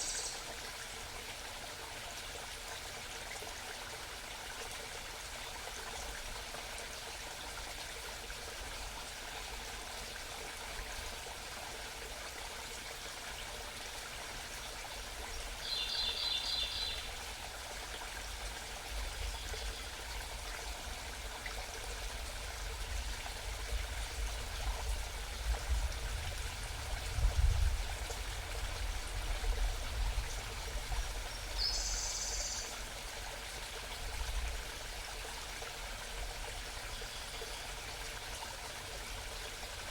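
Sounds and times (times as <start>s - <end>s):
mountain stream babbling: 27.8s - 39.9s
small bird singing: 31.4s - 32.7s.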